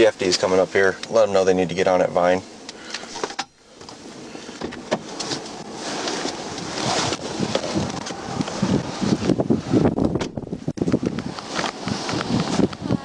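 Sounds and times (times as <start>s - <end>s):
highway traffic: 2.4s - 13.0s
wind on microphone: 5.4s - 13.0s.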